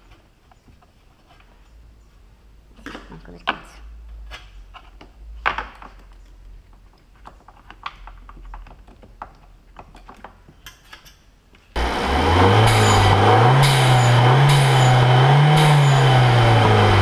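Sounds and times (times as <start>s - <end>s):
car engine revving: 11.8s - 17.0s.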